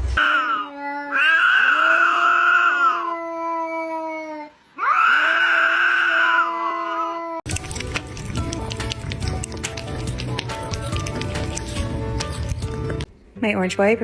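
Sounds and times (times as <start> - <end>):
pet animal howling: 0.2 - 7.5.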